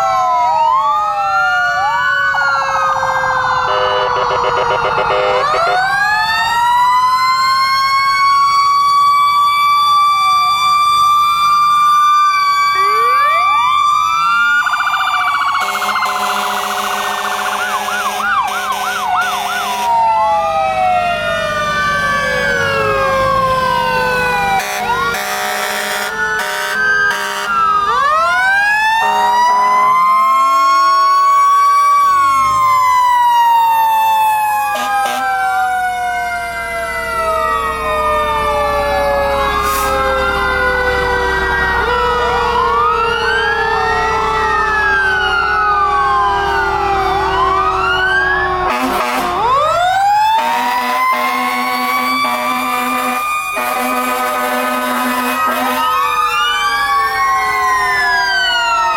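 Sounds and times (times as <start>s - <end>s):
fire truck sirens wailing: 0.0s - 58.9s
air horn blasts: 3.7s - 5.6s, 15.6s - 20.0s, 24.6s - 27.6s, 29.0s - 29.9s, 34.8s - 35.3s, 39.6s - 40.0s, 48.6s - 49.5s, 50.4s - 56.0s.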